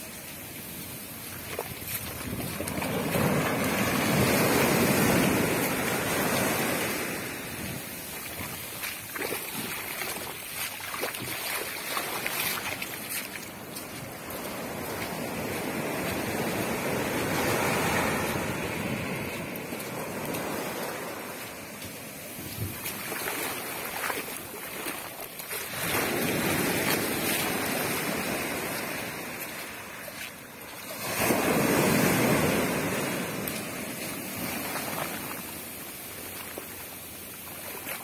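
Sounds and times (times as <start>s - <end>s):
ocean waves breaking: 0.0s - 38.0s
wind buffeting microphone: 1.3s - 21.1s.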